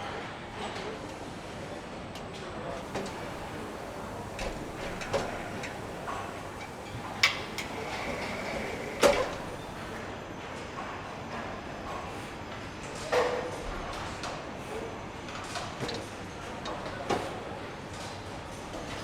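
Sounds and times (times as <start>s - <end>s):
workshop hum: 2.8s - 10.0s.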